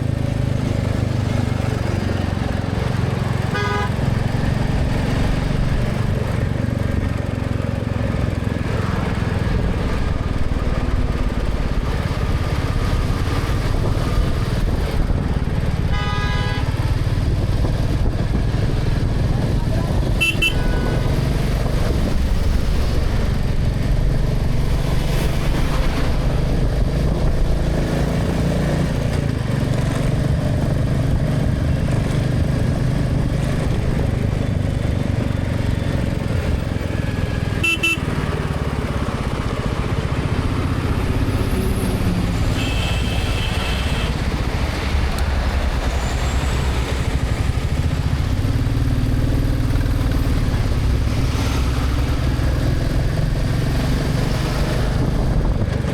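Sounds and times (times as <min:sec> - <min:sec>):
motorcycle engine running: 0:00.0 - 0:55.9
traffic noise: 0:00.0 - 0:55.9
horn toot: 0:03.4 - 0:04.0, 0:15.9 - 0:16.9, 0:20.1 - 0:21.2, 0:37.6 - 0:38.3, 0:42.5 - 0:44.3.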